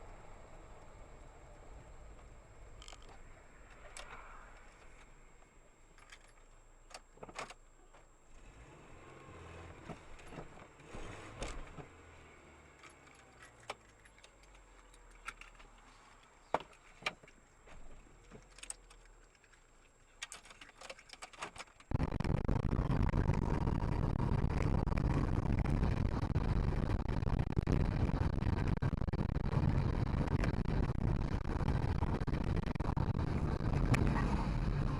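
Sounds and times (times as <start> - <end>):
low vehicle rumble: 0.0 - 6.0, 21.8 - 34.9
loud dense road rumble: 0.0 - 19.8, 21.8 - 34.9
clicks knocks and rattles: 5.9 - 8.1, 12.7 - 22.0.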